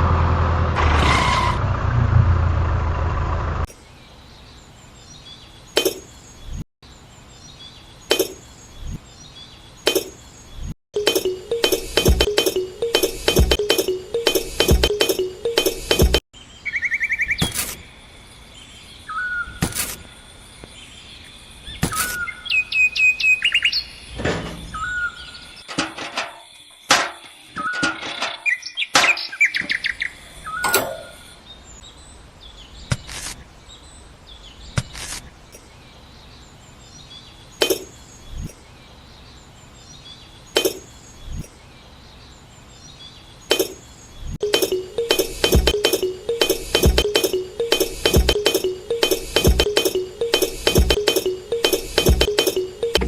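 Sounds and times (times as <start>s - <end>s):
small birds chirping: 3.7s - 25.7s, 27.5s - 53.0s
sharp clicks and knocks: 44.4s - 53.0s.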